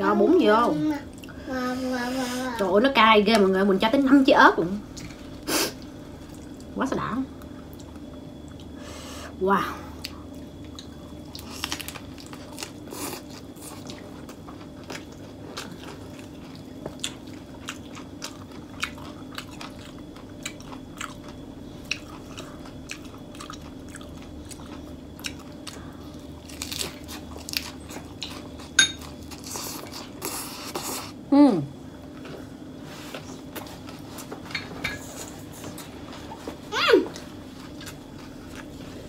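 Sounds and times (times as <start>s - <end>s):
faint low hum: 0.0s - 39.0s
crunchy chewing: 10.0s - 31.2s.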